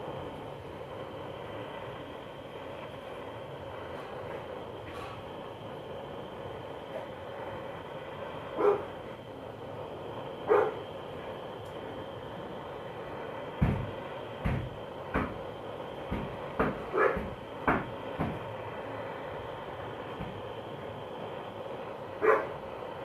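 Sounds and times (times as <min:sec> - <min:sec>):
butane torch hissing: 0:00.0 - 0:23.0
dog barking: 0:08.6 - 0:08.9, 0:10.5 - 0:10.8, 0:16.9 - 0:17.3, 0:22.2 - 0:22.6.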